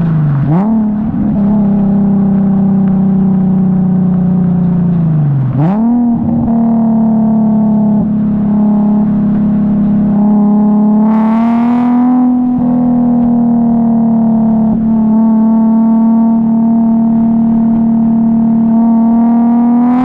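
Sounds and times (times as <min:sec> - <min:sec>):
car exhaust droning while driving: 0:00.0 - 0:20.0.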